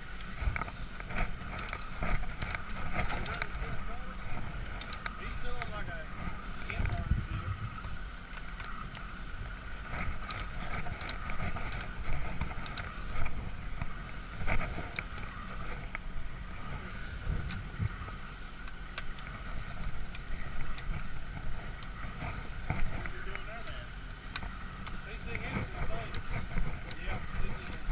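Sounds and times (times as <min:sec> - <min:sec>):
machine rumbling and whining: 0:00.0 - 0:27.9
light clicks and knocks: 0:00.1 - 0:03.8.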